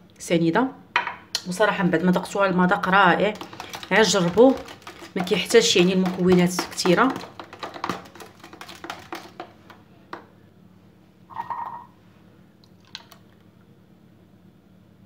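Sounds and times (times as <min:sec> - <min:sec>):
kitchenware clicks and taps: 0:03.4 - 0:10.3.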